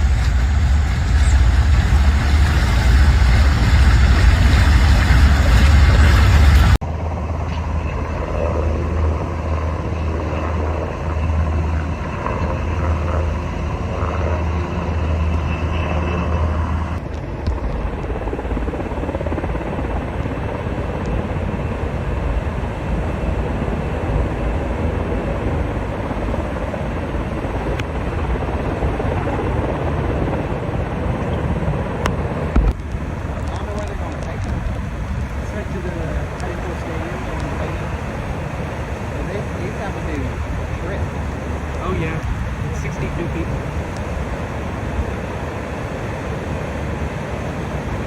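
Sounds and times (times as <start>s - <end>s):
helicopter rotor and engine: 0.0s - 48.0s.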